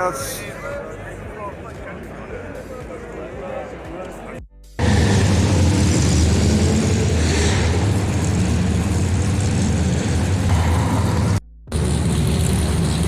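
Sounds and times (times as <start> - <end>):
car engine running: 4.8 - 13.0.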